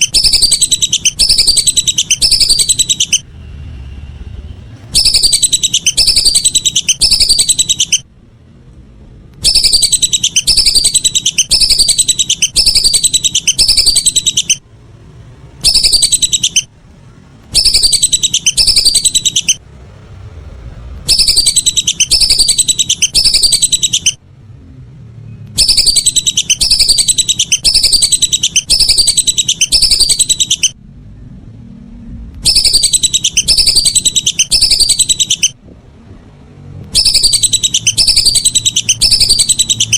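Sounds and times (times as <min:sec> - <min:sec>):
duck whistling calls: 0:00.0 - 0:03.2, 0:04.9 - 0:08.0, 0:09.4 - 0:14.6, 0:15.6 - 0:16.7, 0:17.5 - 0:19.6, 0:21.0 - 0:24.2, 0:25.6 - 0:30.8, 0:32.4 - 0:35.6, 0:36.9 - 0:39.9.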